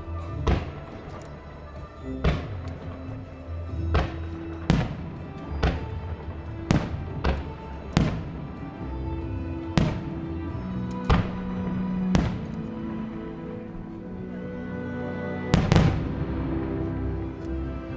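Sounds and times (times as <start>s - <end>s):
music soundtrack: 0.0s - 17.9s
fireworks bangs echoing: 3.9s - 8.8s, 9.8s - 12.8s, 15.5s - 16.4s.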